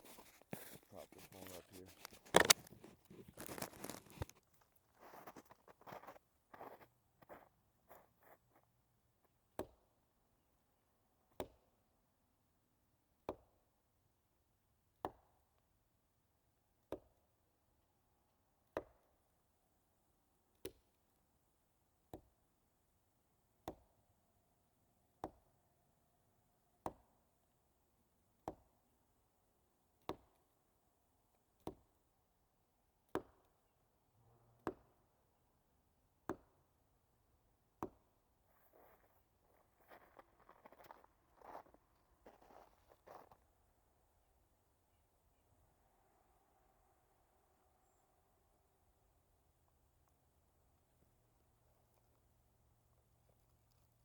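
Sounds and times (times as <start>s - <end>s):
wood knocking against tree: 0.5s - 4.4s.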